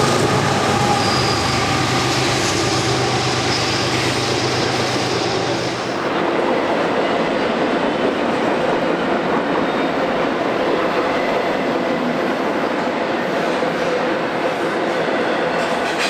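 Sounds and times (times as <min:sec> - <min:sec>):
locomotive engine hum: 0:00.0 - 0:06.2
steel wheels rolling on rail: 0:00.0 - 0:11.4.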